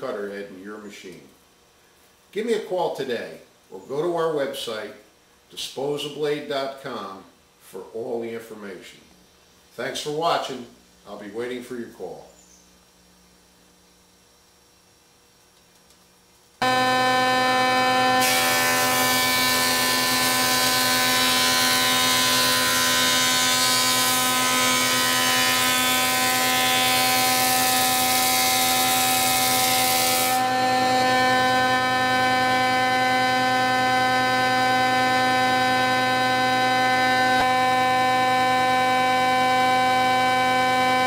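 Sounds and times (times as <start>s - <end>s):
machine motor whine: 16.6s - 22.6s, 30.3s - 41.0s.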